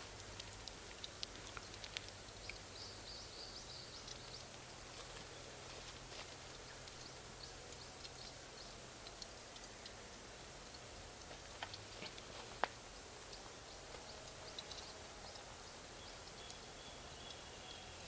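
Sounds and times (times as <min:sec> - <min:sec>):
fire crackling and popping: 0:00.0 - 0:03.0, 0:03.6 - 0:16.7.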